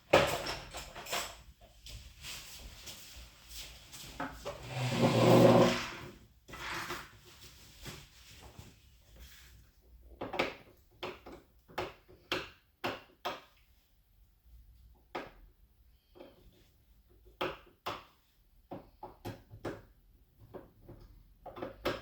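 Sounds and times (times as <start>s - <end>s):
loud pitched rub: 4.6s - 7.0s.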